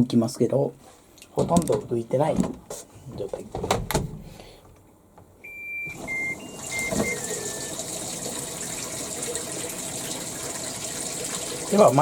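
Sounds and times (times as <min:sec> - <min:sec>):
washing machine control panel beeps: 0:05.4 - 0:08.0
water rushing into tub: 0:06.4 - 0:12.0.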